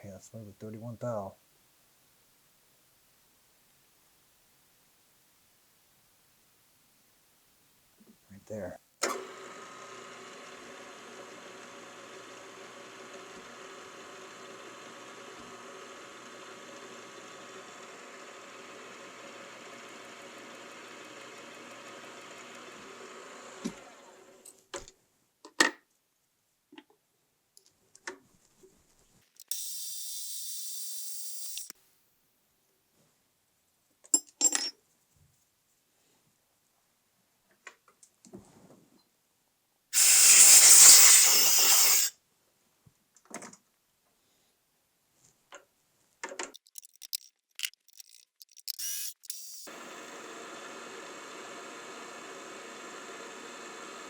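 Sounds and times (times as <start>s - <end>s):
metal tools clicking and knocking: 46.6s - 49.7s
milling machine motor whirring: 46.6s - 53.7s.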